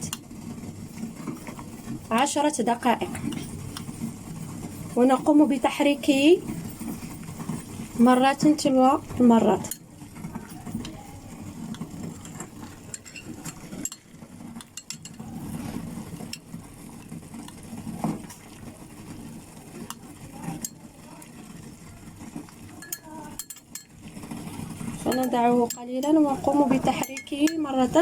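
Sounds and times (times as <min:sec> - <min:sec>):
spoon scraping a pan: 0:00.0 - 0:19.2, 0:19.8 - 0:21.3, 0:22.2 - 0:28.0
spoon clinking against pan: 0:14.6 - 0:15.2, 0:22.8 - 0:24.0, 0:25.1 - 0:26.2, 0:26.8 - 0:27.8.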